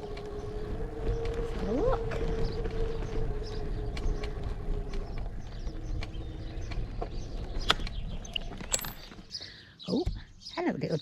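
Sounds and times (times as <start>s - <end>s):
electric bike motor whine: 0.0s - 8.7s
wind rumble on microphone: 0.0s - 9.3s.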